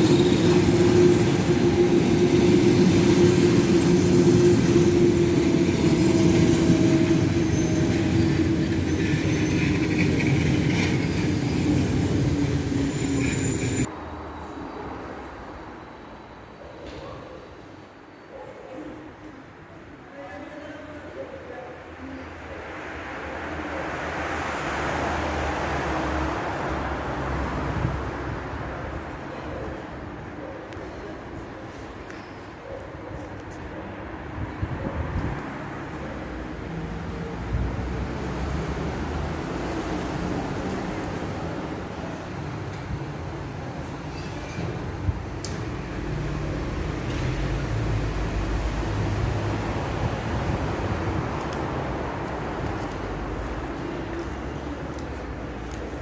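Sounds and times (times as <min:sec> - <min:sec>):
train rumbling: 0:00.0 - 0:13.9
held tone of train: 0:00.0 - 0:17.0, 0:43.8 - 0:45.6.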